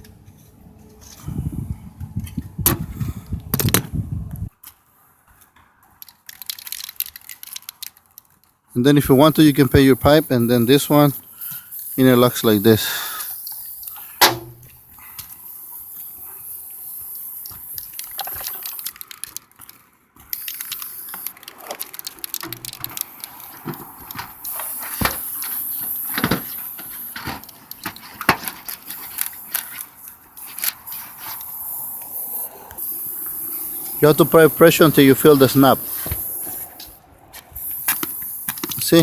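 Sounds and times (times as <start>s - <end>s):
tube sections clicking and scraping: 6.0s - 8.6s, 15.0s - 39.0s.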